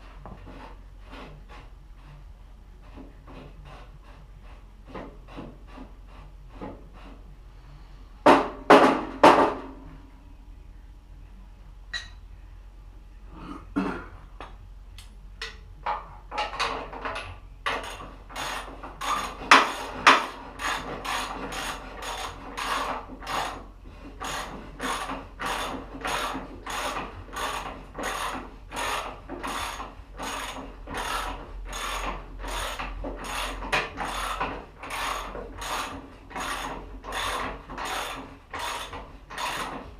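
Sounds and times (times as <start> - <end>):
hand tool back-and-forth strokes: 0.0 - 8.0, 17.7 - 39.9
loud knocks on metal: 8.3 - 9.7.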